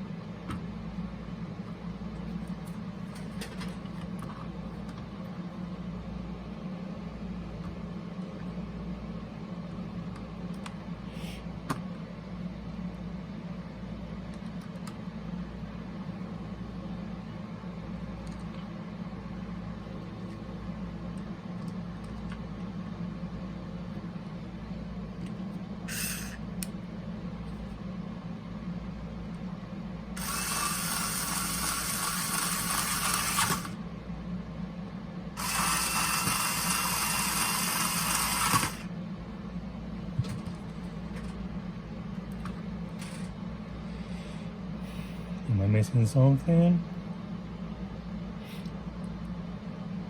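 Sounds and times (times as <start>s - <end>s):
steady low hum: 0.0s - 50.0s
small power tool running: 25.9s - 26.4s, 30.2s - 33.8s, 35.4s - 38.9s.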